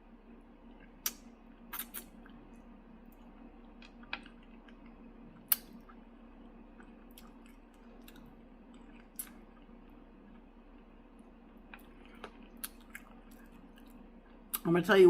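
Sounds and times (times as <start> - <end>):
steady low hum: 0.0 - 15.0
person chewing: 0.6 - 2.5, 3.1 - 14.7
mouth clicks and smacks: 0.7 - 2.4, 3.8 - 6.0, 6.8 - 9.7.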